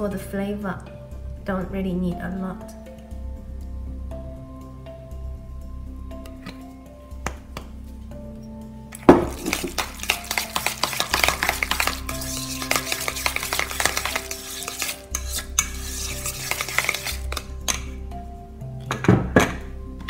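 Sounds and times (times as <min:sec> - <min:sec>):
chopsticks stirring wet filling: 0:08.9 - 0:18.0.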